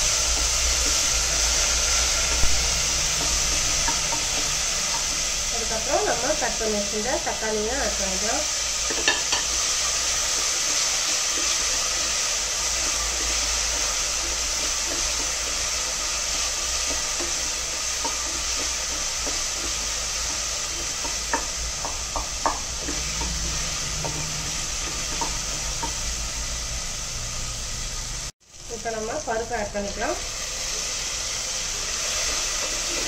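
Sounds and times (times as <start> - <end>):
vegetables sizzling in hot oil: 0.0 - 33.0
spatula knocking and scraping pot: 2.2 - 5.3, 8.8 - 15.6, 16.3 - 26.0.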